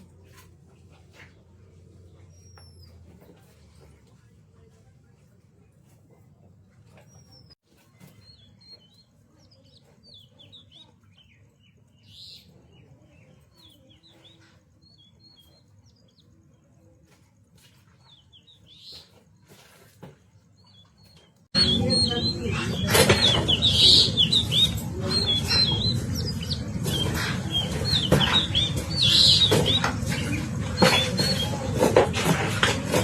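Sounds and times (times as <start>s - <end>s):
birds chirping faintly: 0.0s - 31.9s
low background rumble: 21.6s - 33.0s.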